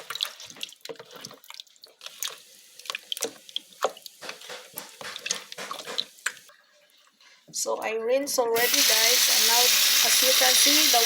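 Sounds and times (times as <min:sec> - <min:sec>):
water splashing under running tap: 0:08.6 - 0:11.0.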